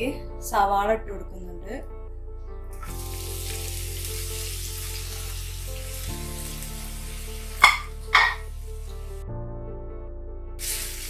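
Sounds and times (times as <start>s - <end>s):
onions sizzling in a frying pan: 3.1s - 8.4s, 10.6s - 11.0s
sharp knocks: 7.6s - 8.4s.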